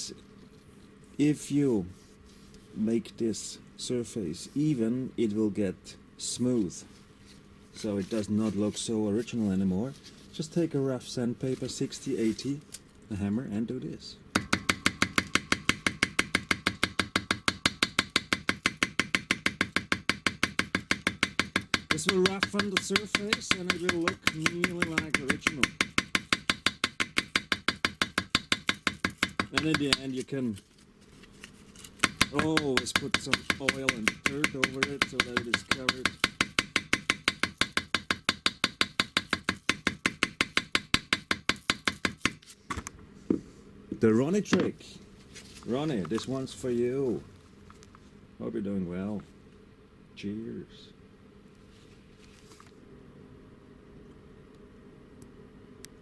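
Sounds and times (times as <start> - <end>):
hammer tapping on sandpaper: 14.4 - 42.6.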